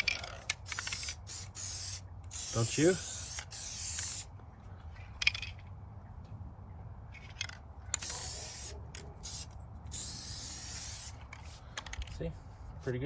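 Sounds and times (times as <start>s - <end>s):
spray paint hissing: 0.4s - 4.3s, 7.9s - 11.6s.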